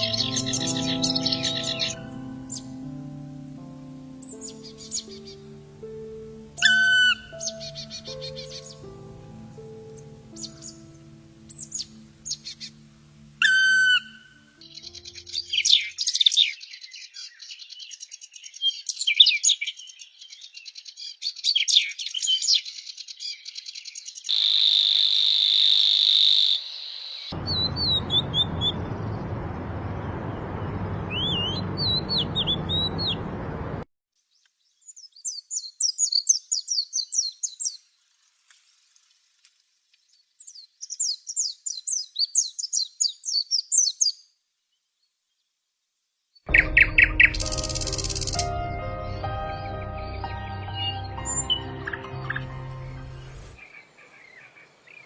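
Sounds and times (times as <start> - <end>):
birds chirping and whistling: 0.0 - 2.8, 6.6 - 8.9, 13.4 - 24.2, 27.4 - 29.2, 30.0 - 33.3, 46.5 - 53.6
high buzzing bird trill: 0.0 - 2.9, 6.6 - 9.3, 9.9 - 16.5, 46.5 - 53.6
rushing background noise: 27.4 - 33.8.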